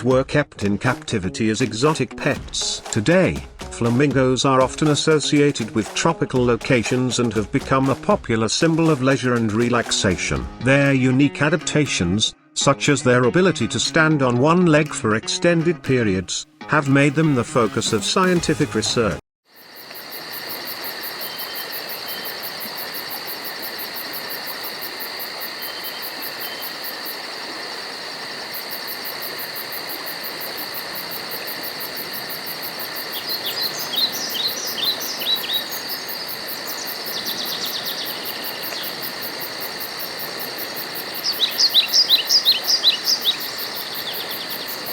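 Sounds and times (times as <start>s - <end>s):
insects chirring: 19.5s - 44.9s
bird chirping in downward sweeps: 33.2s - 36.0s, 41.3s - 44.8s.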